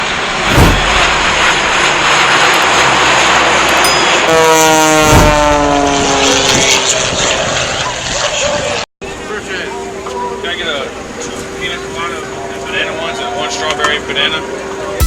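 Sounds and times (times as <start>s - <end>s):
aircraft flying overhead: 0.0s - 15.0s
wind buffeting microphone: 5.1s - 8.8s.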